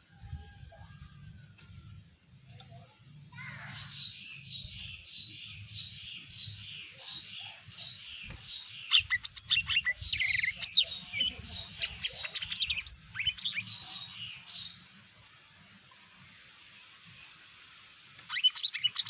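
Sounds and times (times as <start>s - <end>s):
bird singing: 2.4s - 14.8s, 18.2s - 19.0s.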